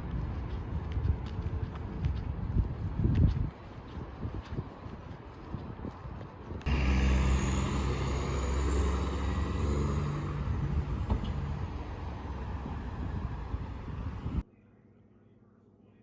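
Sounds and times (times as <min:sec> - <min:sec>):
vehicle engine rumbling: 0:06.6 - 0:14.4.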